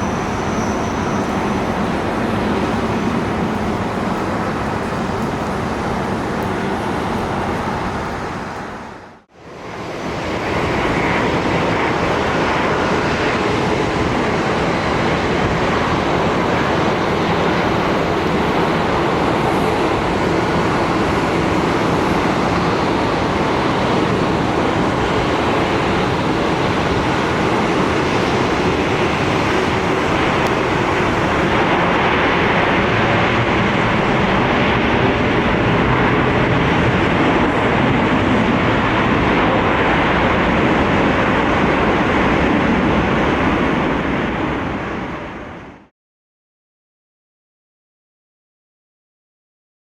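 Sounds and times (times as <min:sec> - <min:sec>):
jet engines roaring: 0:00.0 - 0:45.9.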